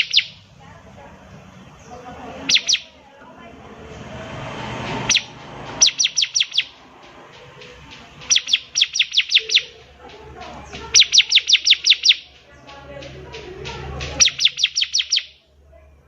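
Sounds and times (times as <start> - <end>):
bird singing high sharp notes: 0.0 - 0.4, 2.4 - 3.0, 5.0 - 9.9, 10.7 - 12.4, 14.1 - 15.4.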